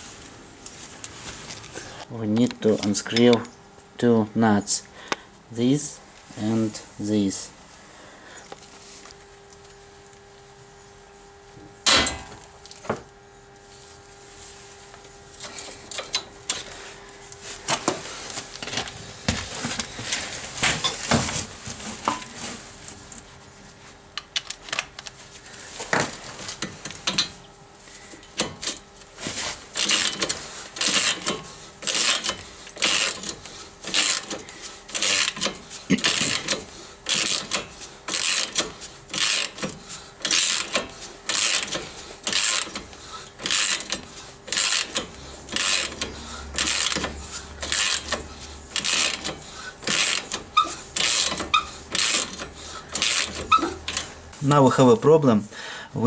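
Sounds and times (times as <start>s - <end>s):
ratchet wrench clicking: 35.0s - 42.8s, 43.4s - 48.2s, 48.8s - 54.0s.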